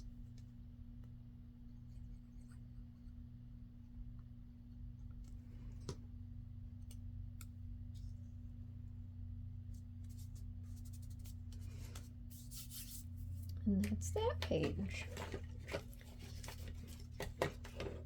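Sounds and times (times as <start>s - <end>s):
low electrical hum: 0.0s - 18.0s
clicks and taps handling paper: 13.8s - 18.0s.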